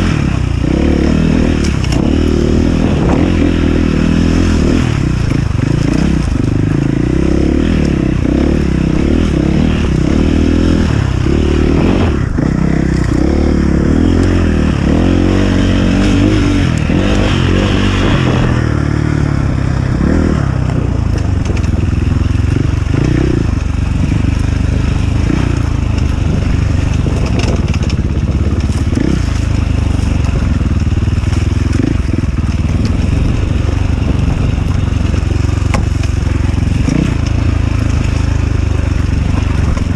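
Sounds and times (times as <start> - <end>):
dirt bike engine revving: 0.0 - 39.9
knocks and clatter: 25.9 - 38.4.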